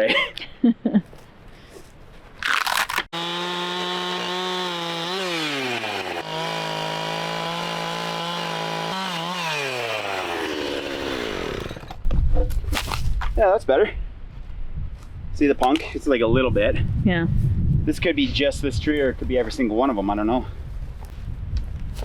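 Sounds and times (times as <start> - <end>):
chainsaw cutting into a log: 2.4 - 12.0.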